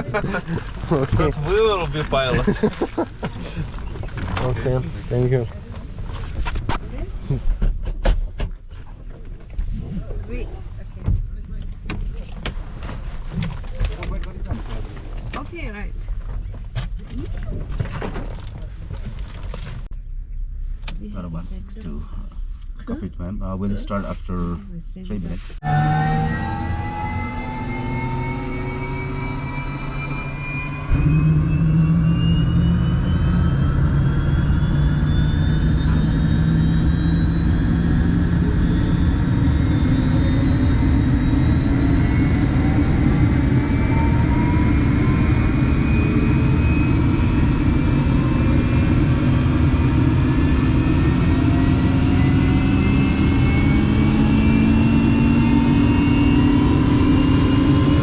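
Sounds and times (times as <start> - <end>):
helicopter engine rumble: 0.0 - 6.6, 25.9 - 58.0
helicopter turbine whine rising: 25.6 - 58.0.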